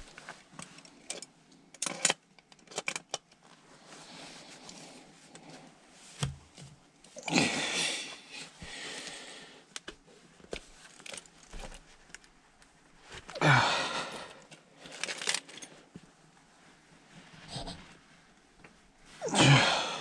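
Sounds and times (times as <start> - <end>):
man exhaling with effort: 7.2 - 9.5, 13.3 - 14.4, 19.2 - 20.0.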